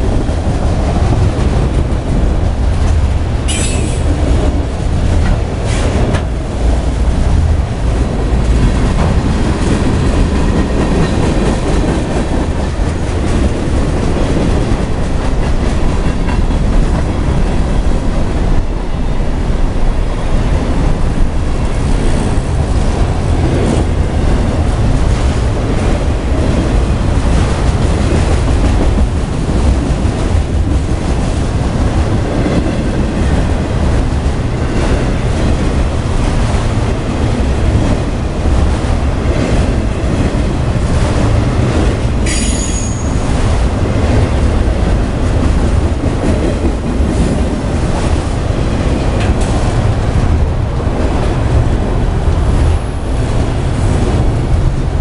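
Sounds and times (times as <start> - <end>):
freight train wheels rumbling: 0.0 - 55.0
high wheel squeal: 42.3 - 43.4.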